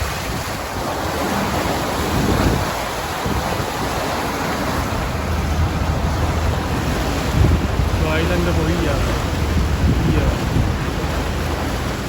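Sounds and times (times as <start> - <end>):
sea water rushing: 0.0 - 12.0
wind buffeting microphone: 0.0 - 12.0.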